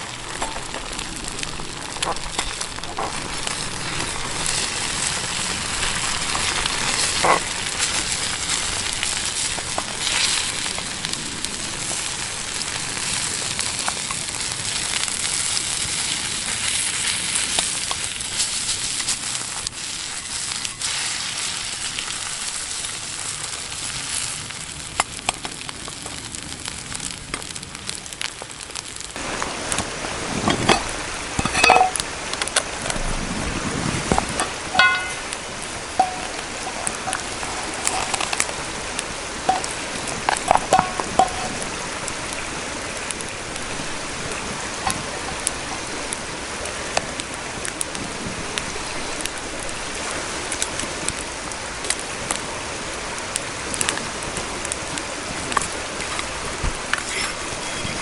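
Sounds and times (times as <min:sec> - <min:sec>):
crackles and pops: 0:00.0 - 0:52.5, 0:53.1 - 0:58.0
food sizzling in a pan: 0:00.3 - 0:25.0, 0:33.8 - 0:42.4.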